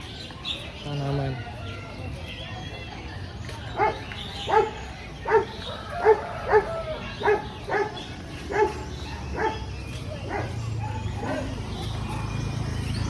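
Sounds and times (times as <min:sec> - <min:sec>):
dog barking: 0:03.8 - 0:12.3.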